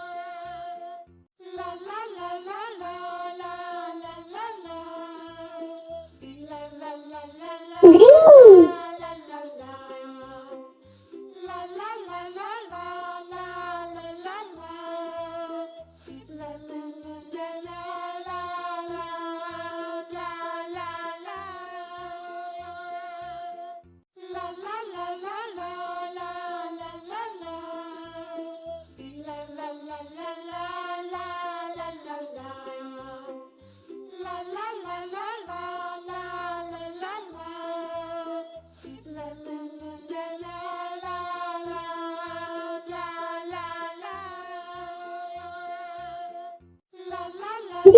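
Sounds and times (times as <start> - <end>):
high voice singing wordless melody: 7.8 - 8.8.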